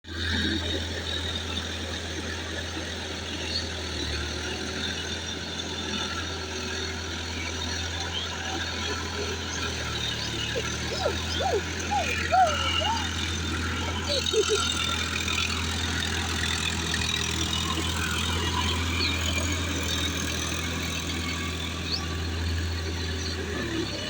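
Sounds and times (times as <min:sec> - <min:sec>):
tractor engine humming: 0:08.2 - 0:24.0.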